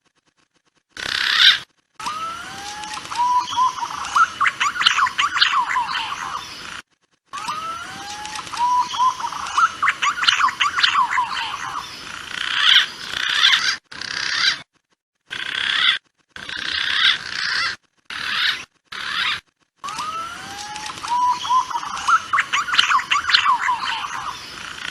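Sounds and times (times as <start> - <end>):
chattering bird calls: 1.0 - 6.8, 7.4 - 14.6, 15.3 - 24.9
gliding whistled bird notes: 2.0 - 6.6, 7.4 - 11.9, 19.9 - 24.6.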